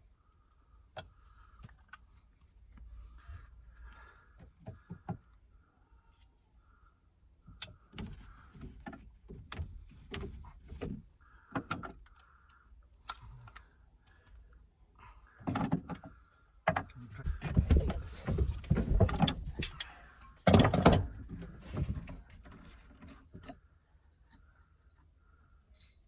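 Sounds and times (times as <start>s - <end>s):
clicks and clatter of hand work: 15.4s - 23.6s.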